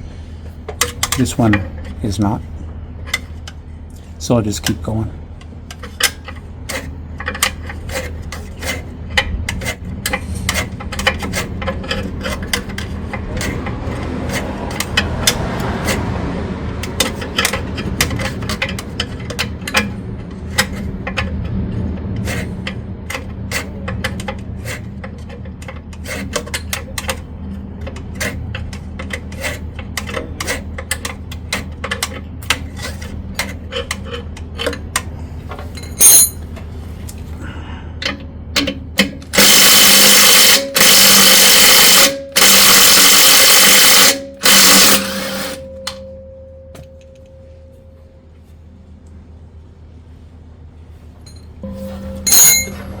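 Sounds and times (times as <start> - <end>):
steady low hum: 0.0 - 53.0
hand ratchet clicking: 38.6 - 46.0.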